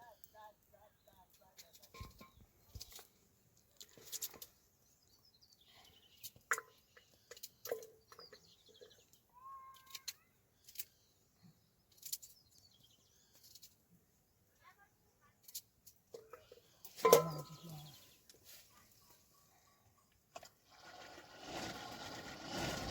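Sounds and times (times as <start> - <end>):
birds chirping: 0.0 - 14.5, 15.4 - 20.2.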